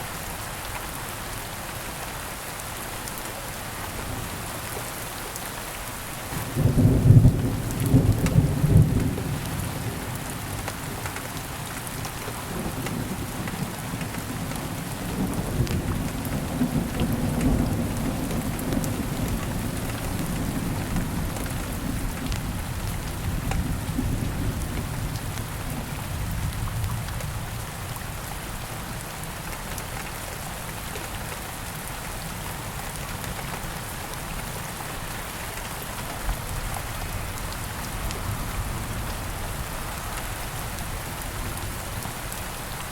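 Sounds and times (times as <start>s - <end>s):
steady rain: 0.0s - 42.9s
low rumble of thunder: 6.4s - 10.6s, 12.2s - 28.2s.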